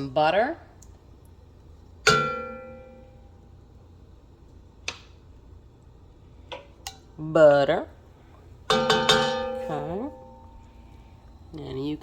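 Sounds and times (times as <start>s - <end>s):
metal cookware ringing knock: 2.1s - 3.1s, 8.7s - 10.6s.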